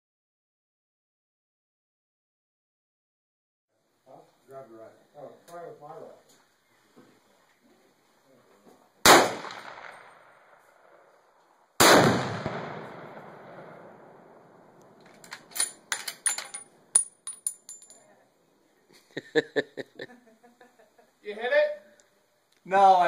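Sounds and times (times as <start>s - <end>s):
rifle shots with echo: 9.0s - 11.0s, 11.8s - 14.6s.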